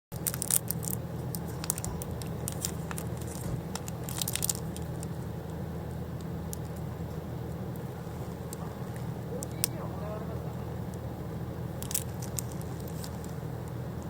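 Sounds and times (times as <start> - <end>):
campfire crackling and popping: 0.1 - 9.8
low rumble: 0.2 - 14.0.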